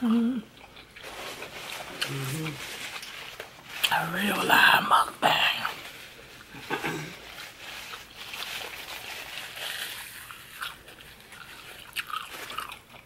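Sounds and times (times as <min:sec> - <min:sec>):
wet chewing mouth sounds: 0:00.0 - 0:04.0, 0:06.4 - 0:13.0.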